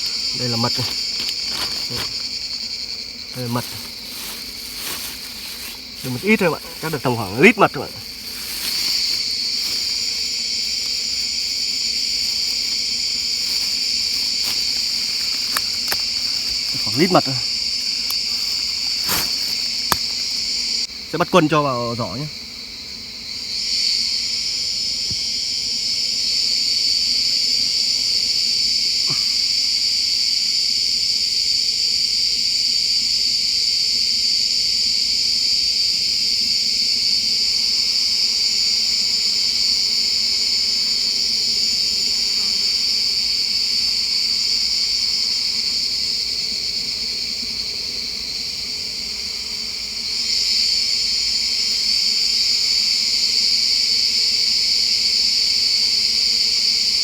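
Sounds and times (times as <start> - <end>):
insects chirring drone: 0.0 - 57.0.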